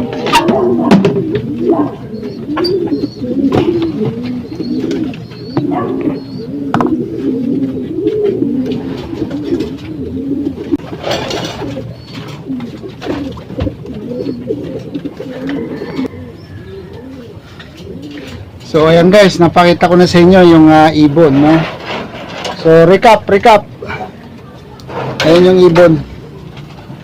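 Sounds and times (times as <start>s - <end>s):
pigeons cooing: 0.0s - 23.0s.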